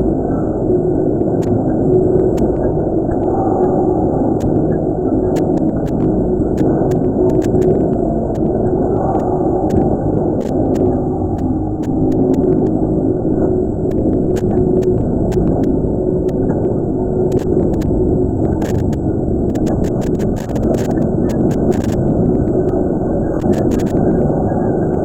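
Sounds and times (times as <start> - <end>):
loud low rumbling in cave: 0.0 - 25.0
faint sharp clicks: 5.4 - 12.8, 17.3 - 25.0.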